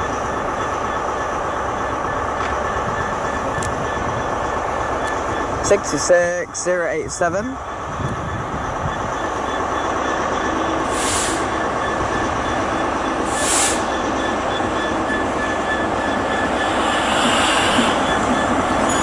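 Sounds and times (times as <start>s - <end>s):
diesel locomotive engine droning: 0.0s - 19.0s
train rail noise: 0.0s - 19.0s
short high hissing bursts: 13.3s - 13.9s.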